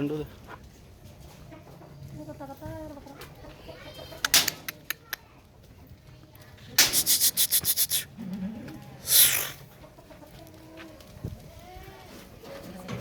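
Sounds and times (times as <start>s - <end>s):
short hissing burst: 6.8s - 8.1s, 9.0s - 9.6s
scraping rubbing strokes: 6.9s - 8.1s, 9.0s - 9.6s.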